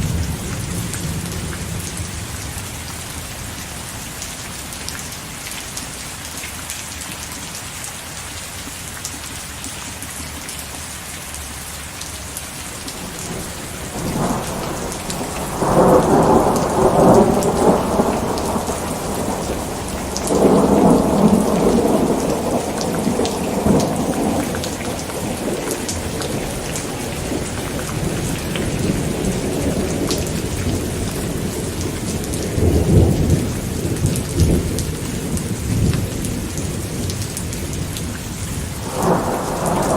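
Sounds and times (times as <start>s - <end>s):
steady rain falling: 0.0s - 39.9s
rolling thunder: 12.9s - 38.0s, 38.7s - 39.9s.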